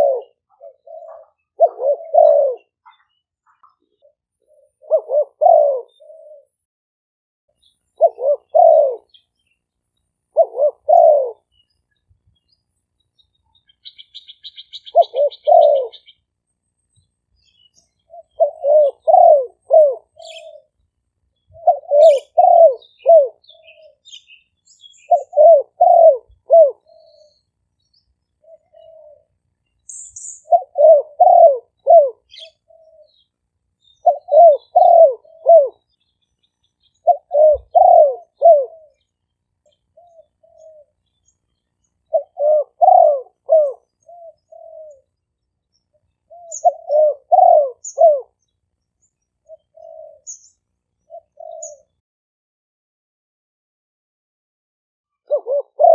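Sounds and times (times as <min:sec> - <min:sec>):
dove cooing: 0:00.0 - 0:06.6, 0:07.9 - 0:09.3, 0:10.3 - 0:11.6, 0:13.6 - 0:16.3, 0:17.5 - 0:20.8, 0:21.4 - 0:27.5, 0:28.3 - 0:29.4, 0:30.2 - 0:33.3, 0:33.9 - 0:35.9, 0:36.8 - 0:39.1, 0:39.7 - 0:41.0, 0:42.0 - 0:45.2, 0:45.9 - 0:48.4, 0:49.4 - 0:52.0, 0:55.2 - 0:55.9
small birds chirping: 0:00.0 - 0:06.6, 0:07.5 - 0:52.0.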